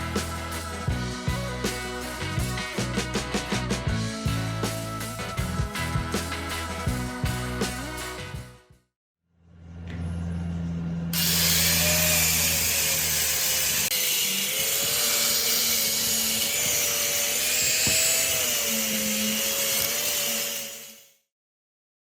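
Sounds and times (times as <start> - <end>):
electric power tool running: 11.1 - 21.1.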